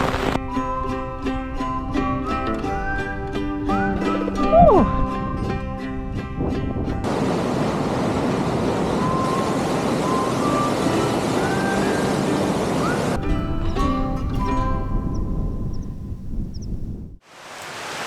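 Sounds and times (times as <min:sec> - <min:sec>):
loud rushing noise: 0:00.0 - 0:00.4.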